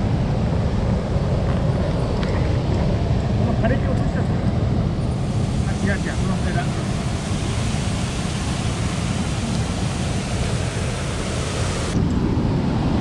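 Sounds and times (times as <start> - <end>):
stream water cascading: 0.0 - 13.0.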